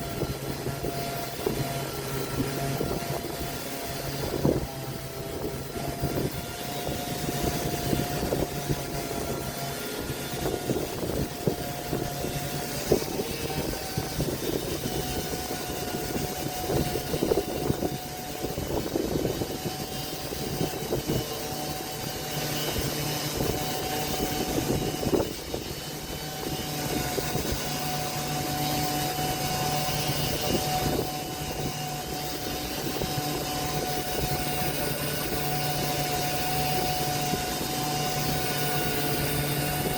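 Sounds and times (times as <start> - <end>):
power tool motor whine: 0.0 - 39.9.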